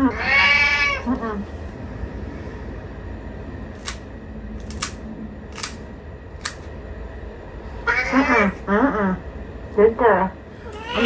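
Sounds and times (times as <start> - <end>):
low steady hum: 0.0 - 11.0
sharp crisp clicks: 3.8 - 6.8.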